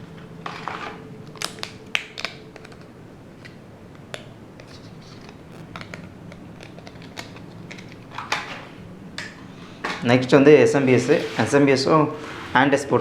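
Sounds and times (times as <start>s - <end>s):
packaging rustle: 0.0s - 8.9s.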